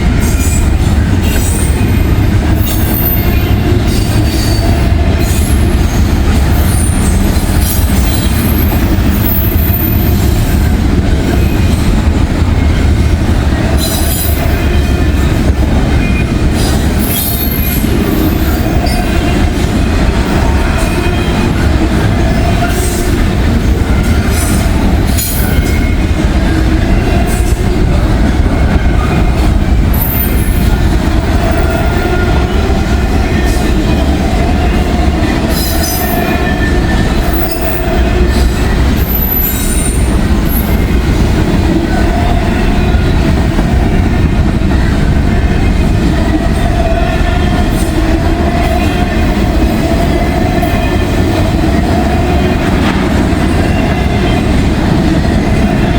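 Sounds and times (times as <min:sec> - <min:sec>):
freight train rumbling on rails: 0:00.0 - 0:55.9
train wheels squealing: 0:00.2 - 0:10.6, 0:13.7 - 0:15.4, 0:16.0 - 0:19.4, 0:35.4 - 0:41.0.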